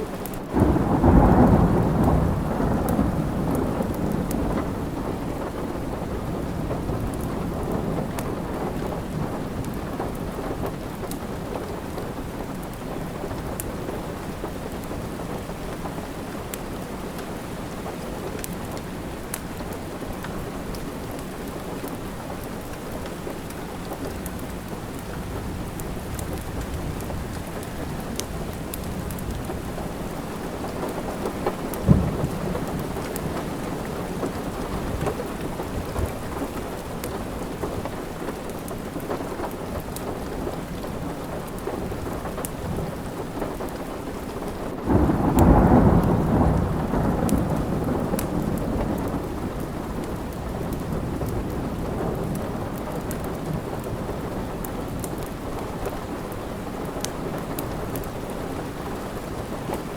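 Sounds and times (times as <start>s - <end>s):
steady rain: 0.0s - 59.9s
thunder rolling: 0.5s - 10.8s, 24.3s - 37.9s, 44.9s - 55.5s
fireplace crackles: 9.5s - 44.8s, 47.5s - 59.9s.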